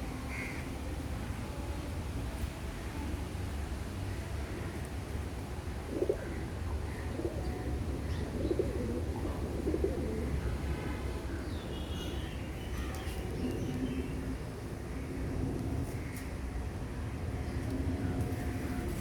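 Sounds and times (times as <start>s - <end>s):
pigeons cooing: 7.0s - 10.4s.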